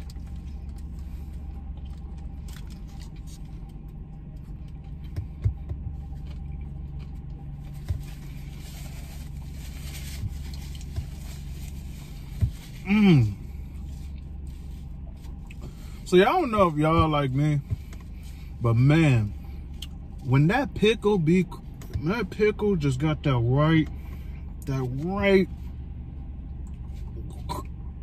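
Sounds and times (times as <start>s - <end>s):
man chewing: 0.0s - 9.5s, 10.2s - 15.8s
steady low hum: 0.0s - 28.0s
paper wrapper rustling: 8.0s - 12.8s
man saying mmm: 12.8s - 13.4s.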